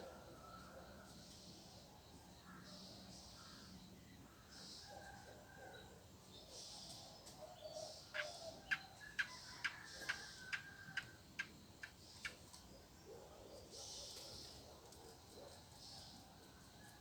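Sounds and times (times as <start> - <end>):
bird calls: 7.5 - 12.4.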